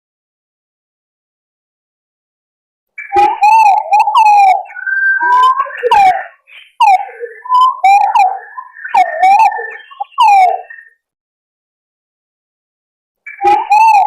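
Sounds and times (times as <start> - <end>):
pigeons whistling calls: 3.0 - 11.0, 13.3 - 14.0.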